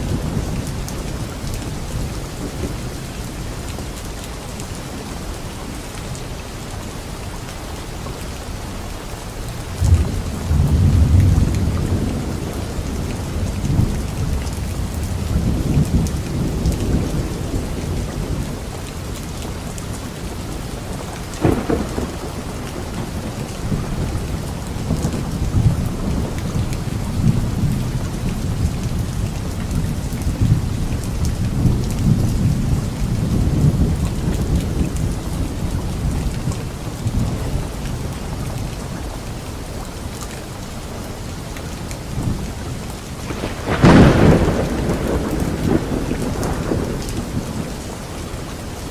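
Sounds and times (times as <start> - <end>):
rain falling on leaves: 0.0 - 48.9
thunder rumbling: 9.7 - 18.7, 20.4 - 38.6, 43.2 - 48.9
sharp thunder crack: 43.3 - 47.6.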